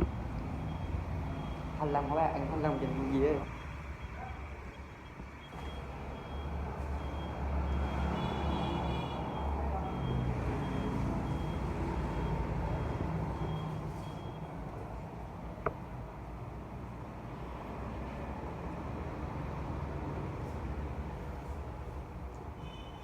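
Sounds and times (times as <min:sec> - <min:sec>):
engine low rumble: 0:00.0 - 0:08.0
reversing alarm beeping: 0:00.0 - 0:14.6.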